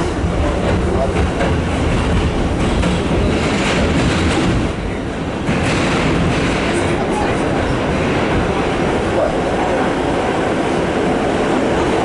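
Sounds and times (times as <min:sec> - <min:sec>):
clicking over rail joints: 0:00.0 - 0:08.5
subway wheels rumbling on rail: 0:00.0 - 0:12.0.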